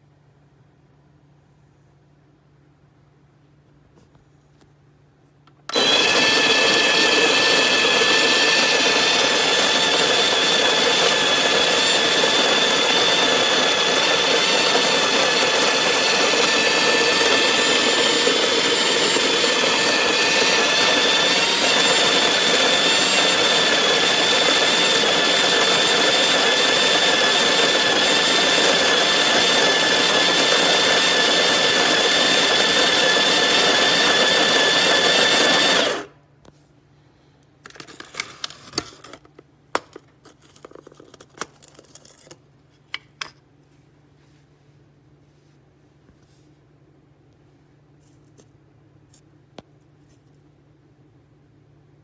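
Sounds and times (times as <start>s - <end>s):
coffee grinder motor whine: 5.7s - 36.1s.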